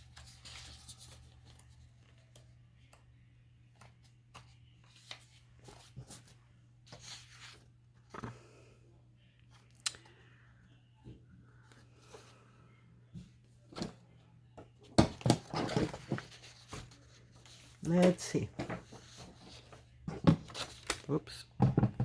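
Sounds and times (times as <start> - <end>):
paper rustling: 0.0 - 2.5, 3.8 - 8.3, 15.4 - 21.2.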